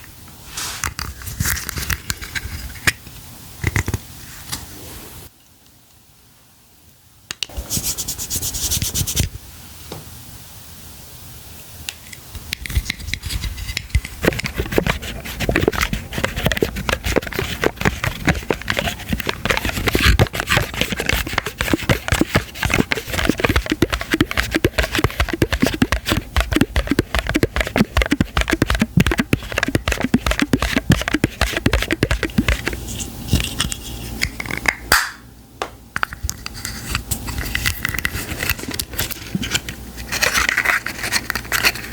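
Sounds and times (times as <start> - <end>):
packaging crinkling and scratching: 12.8 - 33.6, 36.8 - 41.9.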